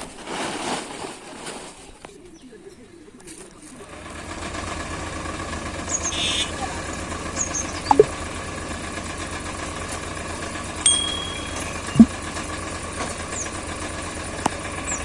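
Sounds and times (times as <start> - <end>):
tractor diesel engine idling: 3.7 - 15.0.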